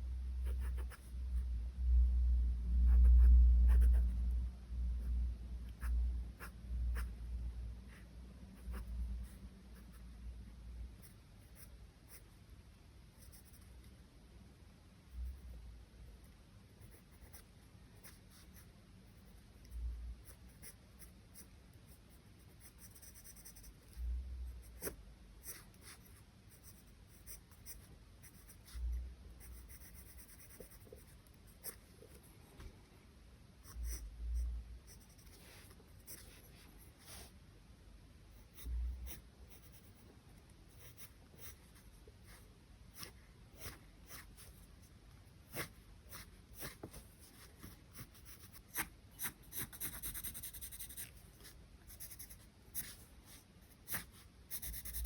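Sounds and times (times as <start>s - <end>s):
charcoal scratching on paper: 45.5s - 55.0s.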